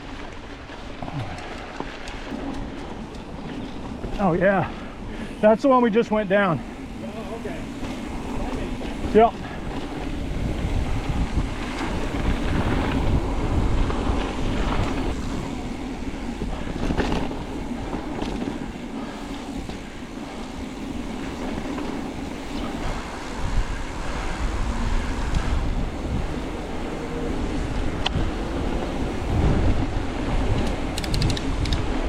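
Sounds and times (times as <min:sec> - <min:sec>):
bike clicks and rattles: 0:00.0 - 0:05.4, 0:06.6 - 0:32.0
tyre noise on dirt trail: 0:00.0 - 0:32.0
wind buffeting microphone: 0:06.4 - 0:32.0.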